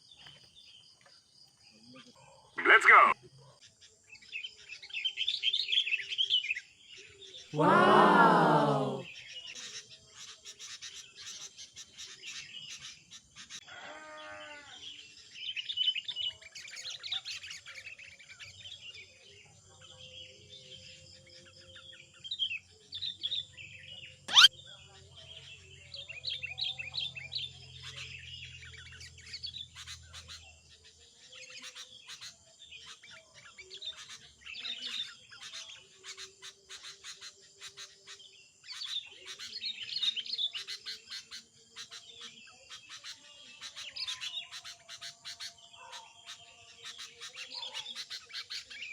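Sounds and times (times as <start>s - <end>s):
small songbirds chirping: 0.0s - 2.6s, 3.2s - 7.5s, 14.4s - 48.9s.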